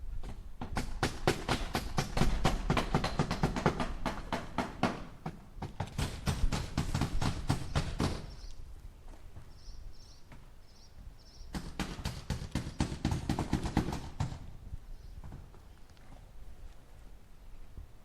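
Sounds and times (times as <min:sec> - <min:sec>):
hammer driving nails into wood: 0:00.2 - 0:08.4, 0:11.5 - 0:14.4.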